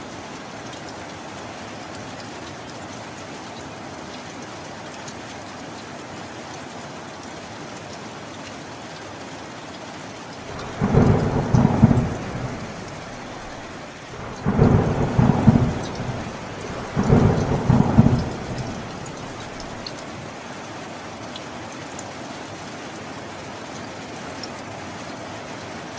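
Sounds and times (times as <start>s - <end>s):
steady rain: 0.0s - 25.9s
thunder rolling: 10.5s - 20.0s.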